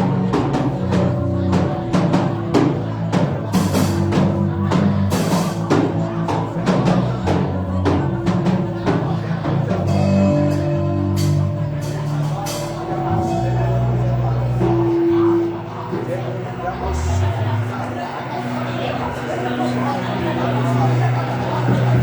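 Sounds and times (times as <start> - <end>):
drum kit beat: 0.0 - 17.6
sustained low chords: 0.0 - 22.0.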